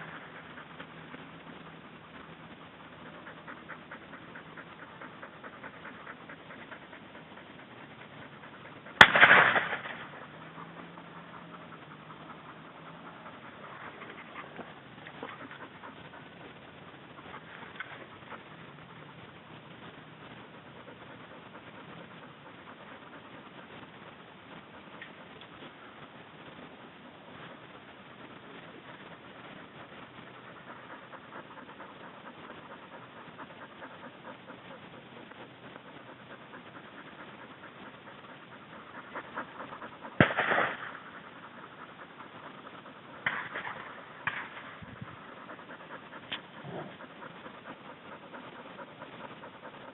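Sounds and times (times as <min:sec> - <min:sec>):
dog panting: 0:00.0 - 0:49.9
shotgun shot echoing: 0:09.0 - 0:10.1, 0:40.2 - 0:40.9.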